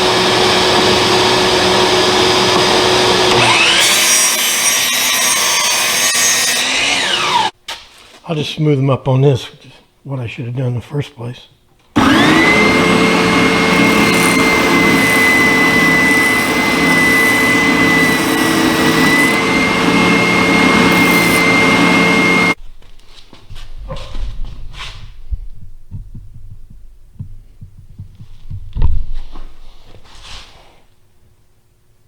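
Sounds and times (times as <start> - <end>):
power sander whining: 0.0 - 7.5, 12.0 - 22.6.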